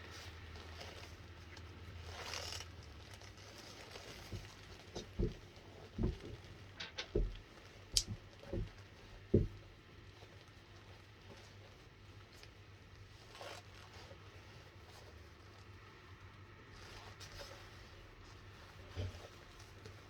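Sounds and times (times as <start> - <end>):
light rustling: 0.2 - 15.6
soft dull thumps: 4.2 - 9.8.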